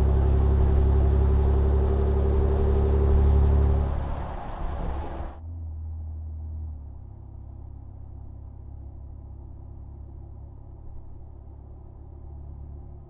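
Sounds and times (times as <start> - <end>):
truck engine idling rumble: 0.0 - 5.4.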